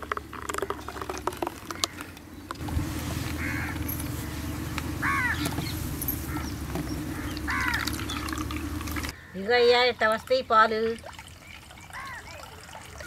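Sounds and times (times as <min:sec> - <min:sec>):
steady low hum: 0:00.0 - 0:09.3
harsh bird call: 0:05.0 - 0:08.5.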